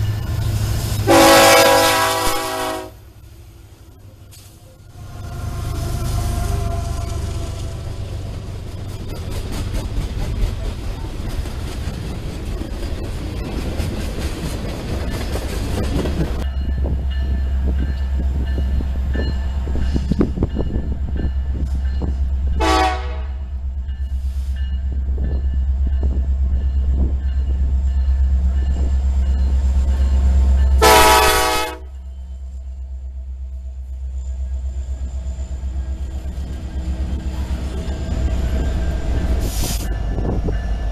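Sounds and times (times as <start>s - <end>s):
diesel locomotives deep rumble: 0.0s - 40.9s
train air horn blasts: 1.0s - 3.1s, 22.6s - 23.5s, 30.8s - 32.0s.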